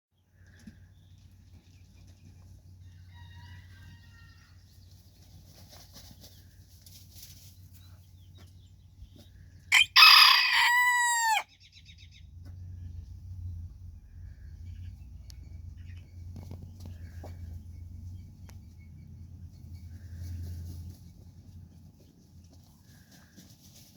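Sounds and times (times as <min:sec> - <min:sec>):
rooster crowing: 0:02.8 - 0:04.5, 0:09.7 - 0:11.5
low steady rumble: 0:11.5 - 0:23.9.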